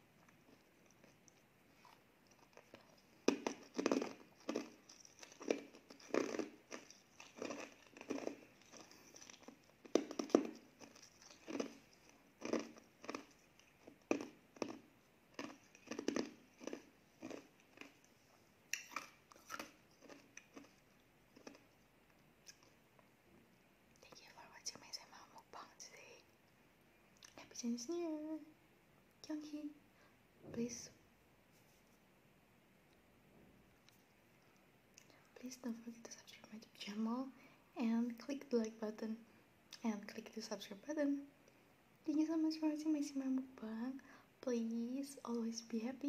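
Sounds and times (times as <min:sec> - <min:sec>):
wet chewing sounds: 0:00.2 - 0:22.8.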